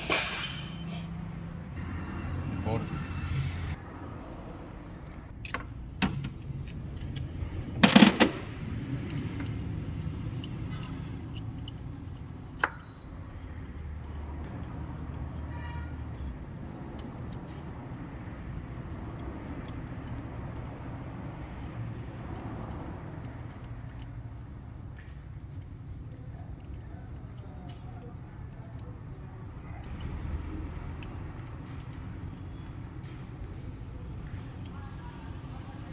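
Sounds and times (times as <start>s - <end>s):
metal engine parts clattering: 0.0s - 1.6s.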